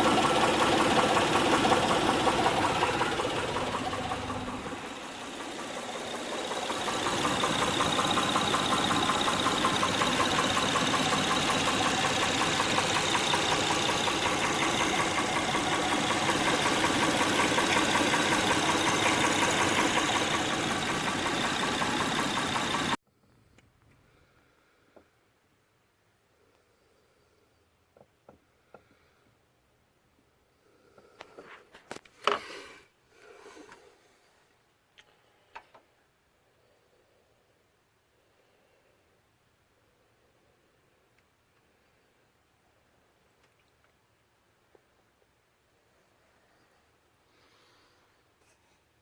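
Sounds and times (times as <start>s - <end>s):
car engine running: 0.0s - 23.0s
rapid engine knocking: 0.0s - 23.0s.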